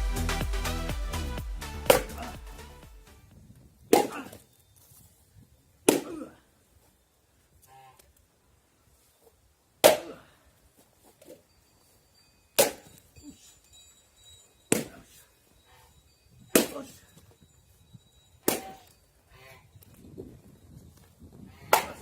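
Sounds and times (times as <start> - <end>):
axe splitting firewood: 1.9 - 2.4, 3.9 - 4.4, 5.9 - 6.4, 9.8 - 10.2, 12.6 - 13.0, 14.7 - 15.2, 16.5 - 17.0, 18.4 - 18.8, 21.7 - 22.0.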